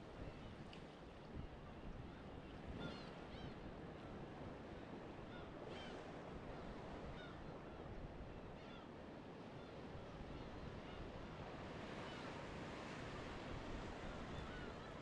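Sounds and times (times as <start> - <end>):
waves on a shore: 0.0 - 15.0.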